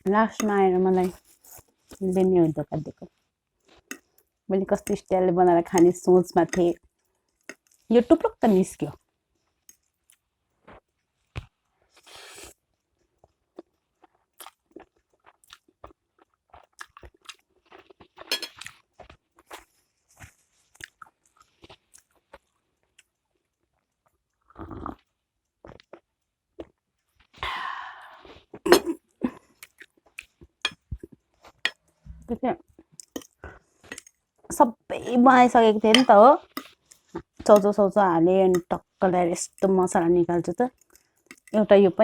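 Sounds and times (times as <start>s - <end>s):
wet chewing and crunching: 3.6s - 8.6s, 13.2s - 27.4s, 29.5s - 31.8s, 32.7s - 34.6s, 35.9s - 37.9s, 40.6s - 41.6s.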